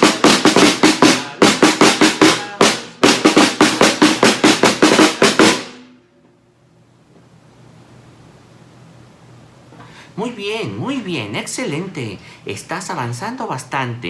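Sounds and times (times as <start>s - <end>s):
snare drum fast steady beat: 0.0s - 5.9s.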